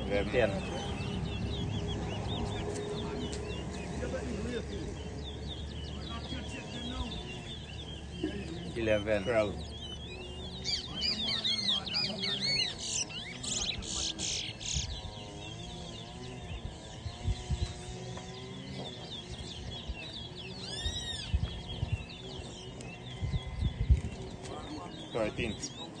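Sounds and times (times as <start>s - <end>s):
finch singing: 0.0s - 26.0s.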